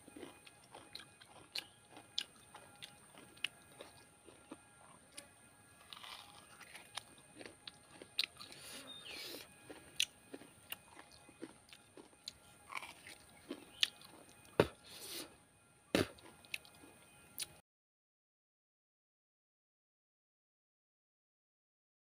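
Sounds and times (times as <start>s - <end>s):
crunchy chewing: 0.0s - 15.4s, 16.0s - 17.6s.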